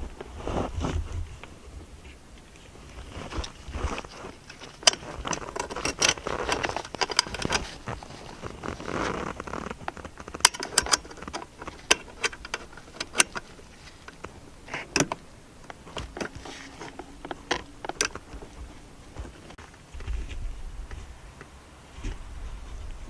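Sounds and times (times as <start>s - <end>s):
metallic clicks and rattles: 3.4s - 18.6s.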